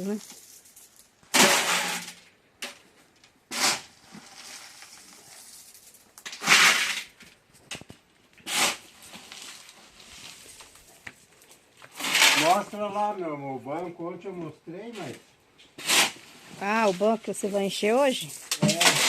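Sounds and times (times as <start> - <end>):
shovel scraping sand and stone: 0.0 - 2.2, 3.5 - 7.2, 8.4 - 10.8, 11.9 - 13.0, 14.9 - 19.0.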